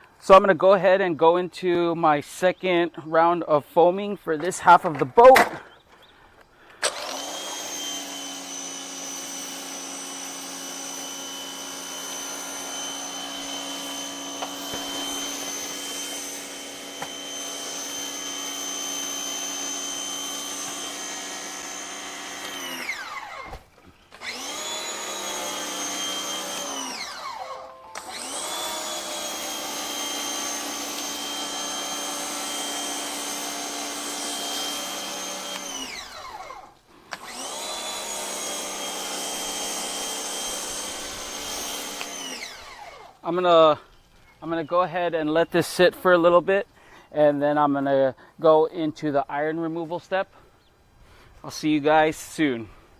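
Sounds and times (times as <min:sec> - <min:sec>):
electric pressure washer running: 0:06.8 - 0:43.2.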